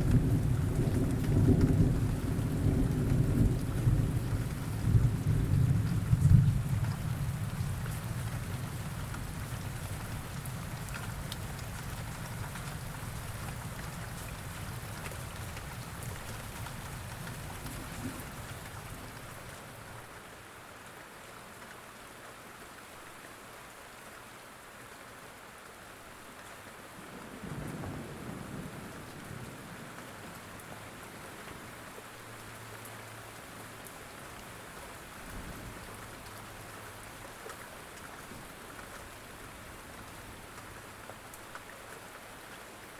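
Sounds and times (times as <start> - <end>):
distant thunder rumbling: 0.0 - 9.6
steady rain: 0.0 - 42.9.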